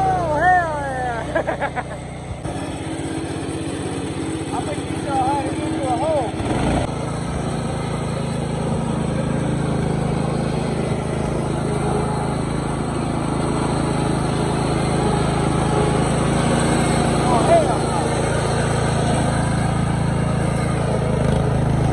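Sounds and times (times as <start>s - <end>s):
riding mower engine droning: 0.0s - 21.9s.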